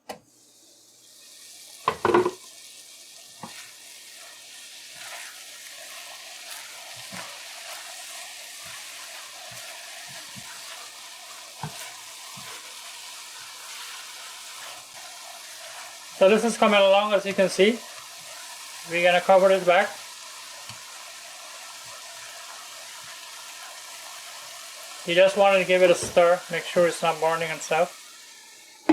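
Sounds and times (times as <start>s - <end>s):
vegetables sizzling in oil: 0.3s - 28.9s
spoon knocking against pan: 1.8s - 2.4s.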